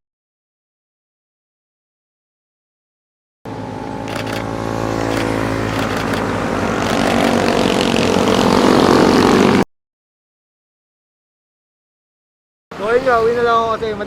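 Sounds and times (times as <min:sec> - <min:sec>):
motorcycle engine approaching: 0:03.5 - 0:09.7.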